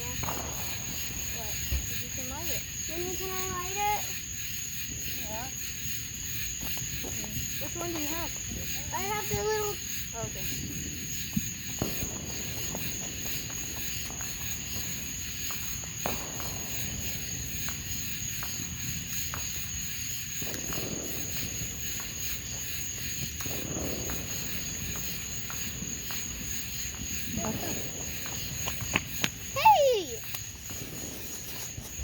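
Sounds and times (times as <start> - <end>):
crickets chirping: 0.0 - 32.0
short sharp pops: 28.2 - 29.4.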